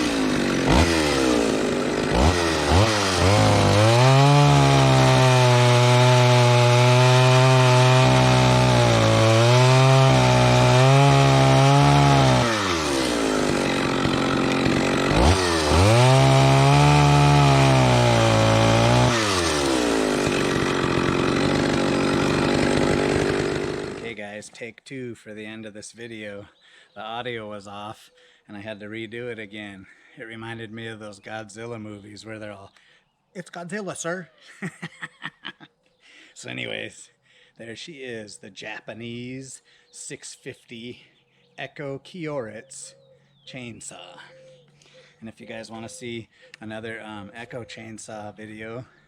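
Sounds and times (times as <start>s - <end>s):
chainsaw cutting wood: 0.0s - 24.2s.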